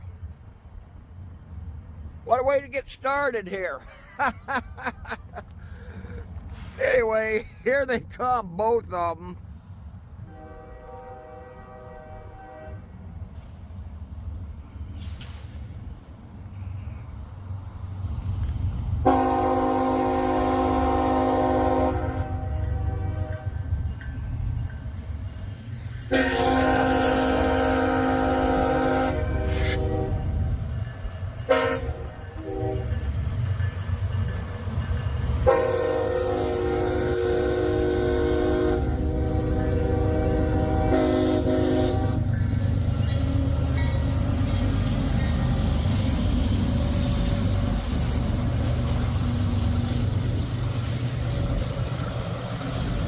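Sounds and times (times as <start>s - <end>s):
diesel locomotive engine rumble: 0.0s - 53.0s
hiss of rolling freight cars: 0.0s - 53.0s
locomotive air horn blasts: 10.3s - 12.9s, 19.0s - 23.6s, 26.1s - 30.4s, 31.4s - 33.0s, 35.4s - 42.3s.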